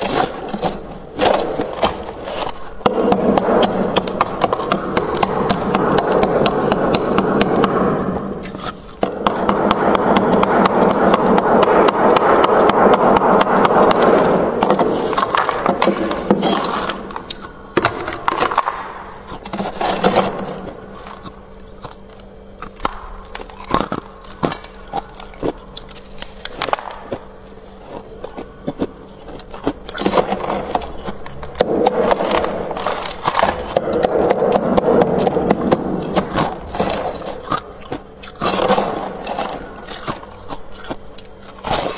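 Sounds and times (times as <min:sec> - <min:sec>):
freezer frost being scraped: 0:00.0 - 0:09.1, 0:13.2 - 0:41.9
crisp clicks and crackles: 0:00.0 - 0:09.5, 0:13.2 - 0:41.9.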